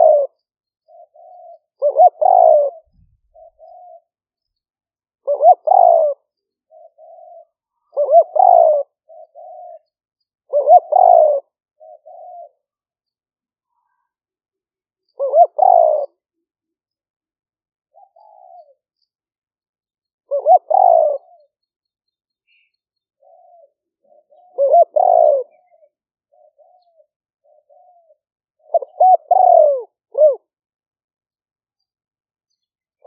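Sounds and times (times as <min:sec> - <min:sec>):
dove cooing: 0:00.0 - 0:04.2, 0:05.2 - 0:12.7, 0:15.1 - 0:16.3, 0:17.9 - 0:18.9, 0:20.3 - 0:21.6, 0:22.5 - 0:30.5.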